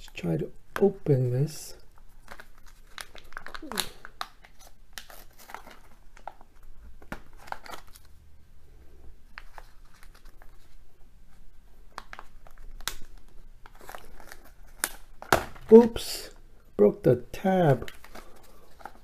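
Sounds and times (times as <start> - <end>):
plastic clicks and crinkling: 2.2 - 8.1, 11.9 - 15.8.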